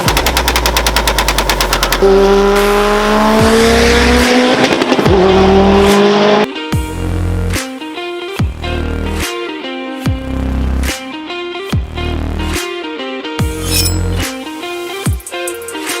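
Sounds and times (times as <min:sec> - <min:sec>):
car engine pulling: 0:00.0 - 0:04.6.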